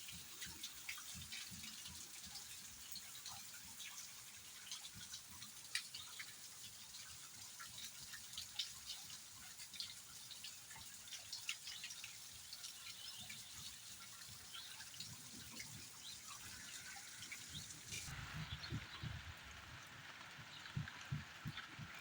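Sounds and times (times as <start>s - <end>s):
rain falling: 0.0s - 22.0s
raindrops striking close by: 0.0s - 22.0s.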